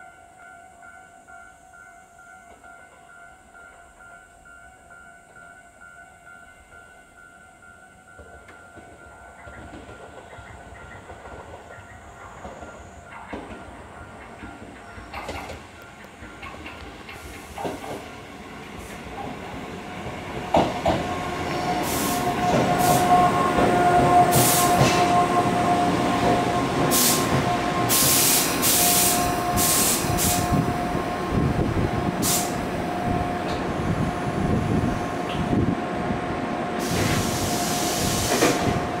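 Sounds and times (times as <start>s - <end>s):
electric train whine: 0.0s - 39.0s
train rolling noise: 0.0s - 39.0s
short high hissing bursts: 21.8s - 23.0s, 26.9s - 27.3s, 27.9s - 30.5s, 32.2s - 32.6s.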